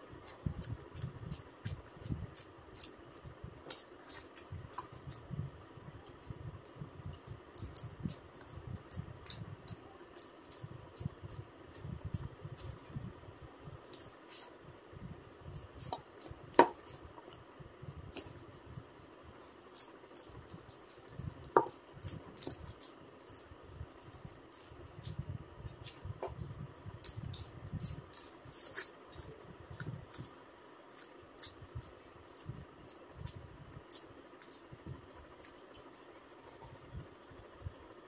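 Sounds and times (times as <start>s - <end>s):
person chewing wetly: 0.2s - 12.8s, 13.8s - 14.6s, 15.5s - 34.7s.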